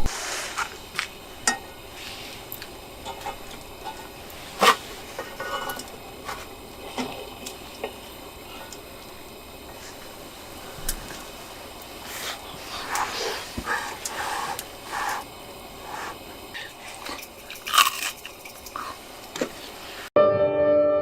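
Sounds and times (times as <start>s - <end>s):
cookware and utensils clinking: 3.0s - 8.0s.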